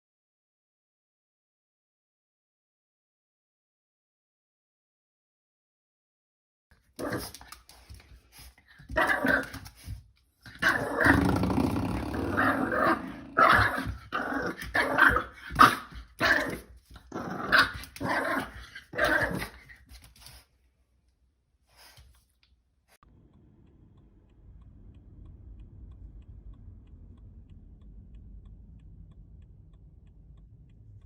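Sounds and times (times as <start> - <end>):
dog growling and barking: 7.0 - 7.9, 8.8 - 9.8, 10.5 - 19.8.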